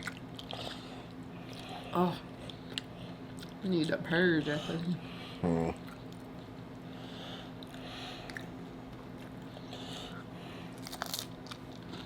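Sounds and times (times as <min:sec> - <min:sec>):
steady low hum: 0:00.0 - 0:12.0
breathing: 0:06.9 - 0:08.4, 0:09.6 - 0:10.8.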